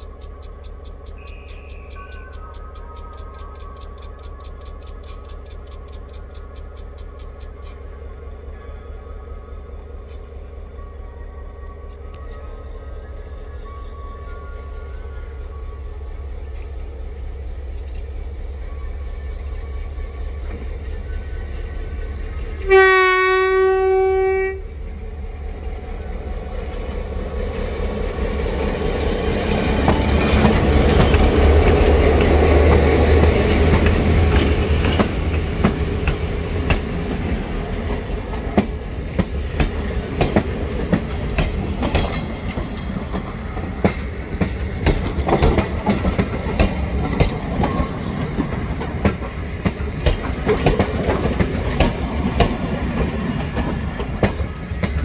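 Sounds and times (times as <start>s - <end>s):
train wheels clickety-clack: 0.0s - 7.8s, 26.6s - 55.0s
train horn blast: 22.6s - 24.8s.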